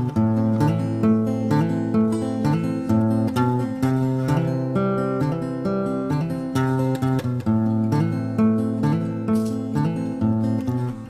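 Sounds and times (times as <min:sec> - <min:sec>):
acoustic guitar playing: 0:00.0 - 0:11.0.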